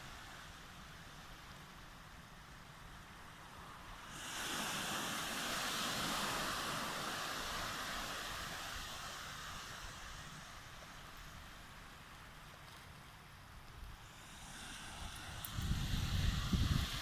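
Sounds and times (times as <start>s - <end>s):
ocean wave washing: 2.8s - 13.3s, 14.0s - 17.0s.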